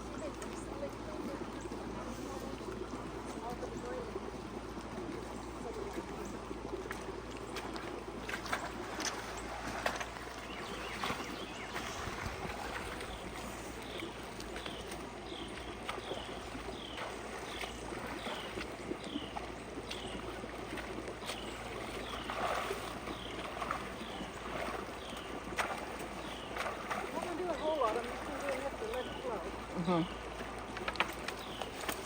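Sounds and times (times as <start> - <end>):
water rushing through creek: 0.0 - 32.0.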